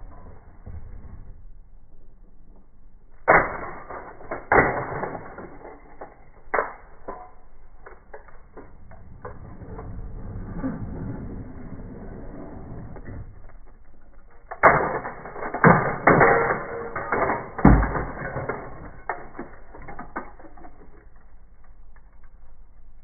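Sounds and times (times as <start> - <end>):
metal toy cars clattering: 13.4 - 21.3.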